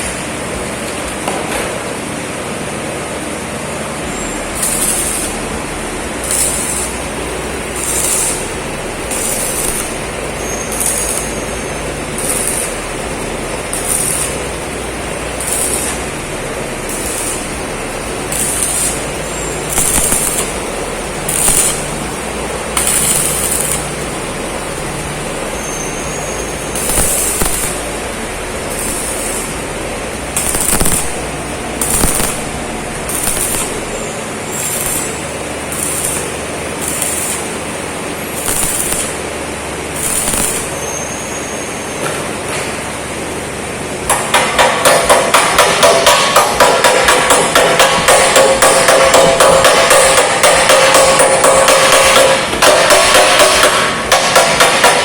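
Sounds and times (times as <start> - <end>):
machine humming: 0.0 - 55.0
short hissing bursts: 4.1 - 13.1, 16.8 - 24.7, 25.4 - 29.7, 30.3 - 39.2, 39.9 - 41.8.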